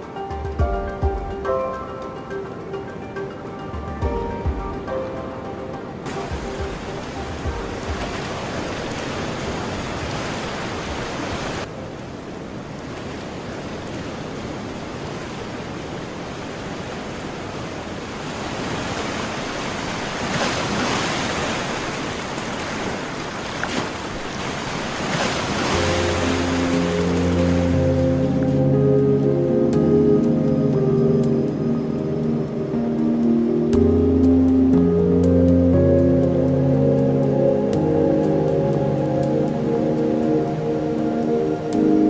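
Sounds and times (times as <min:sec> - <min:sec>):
surf washing onto beach: 0:06.0 - 0:28.6.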